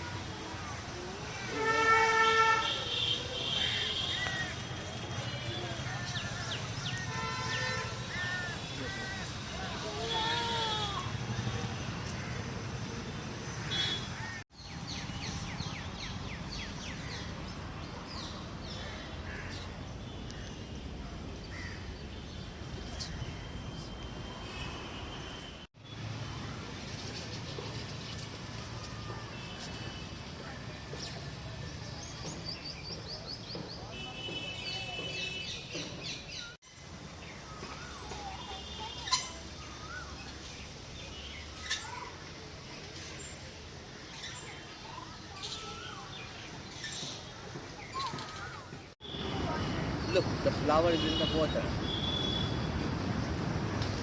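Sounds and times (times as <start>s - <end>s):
outdoor background noise: 0.0s - 54.0s
birds chirping: 30.9s - 54.0s.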